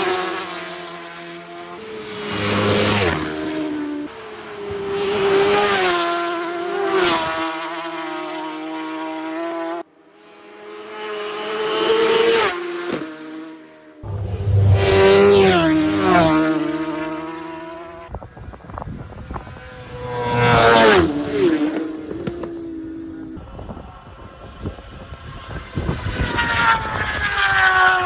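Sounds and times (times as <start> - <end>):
racing motorcycles passing by: 0.0 - 9.8, 10.4 - 18.1, 25.1 - 28.0.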